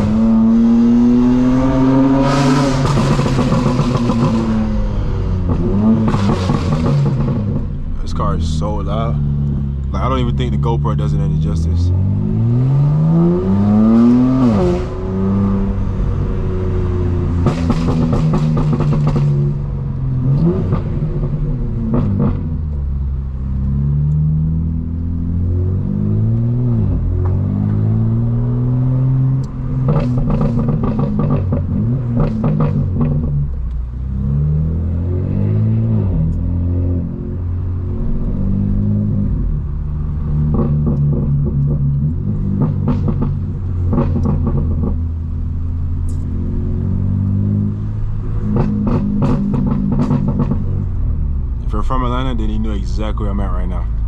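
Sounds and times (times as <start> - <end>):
car engine revving: 0.0 - 54.0
exhaust crackles: 2.3 - 25.1, 47.7 - 54.0.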